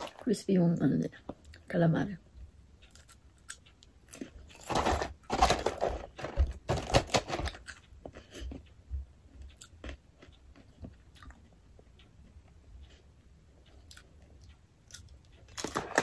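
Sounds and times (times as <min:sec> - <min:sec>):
soft chewing clicks: 0:01.0 - 0:05.3, 0:07.5 - 0:16.0
crunchy chewing: 0:02.8 - 0:11.8, 0:12.8 - 0:16.0.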